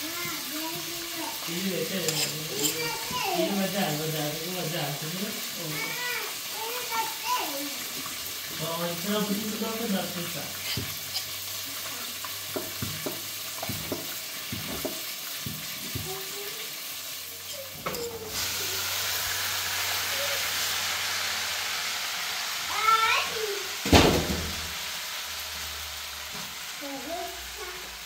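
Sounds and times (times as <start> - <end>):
food sizzling in a pan: 0.0 - 28.0
utensil knocking against pan: 12.5 - 16.1.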